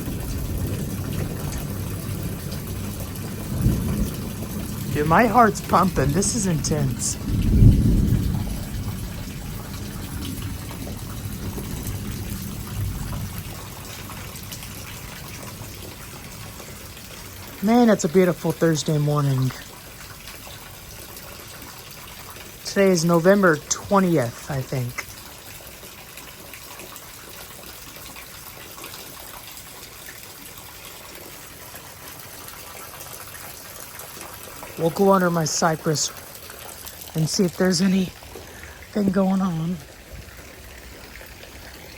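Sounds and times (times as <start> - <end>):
thunder rumble: 0.0 - 17.6
heavy rain pouring: 0.0 - 41.9.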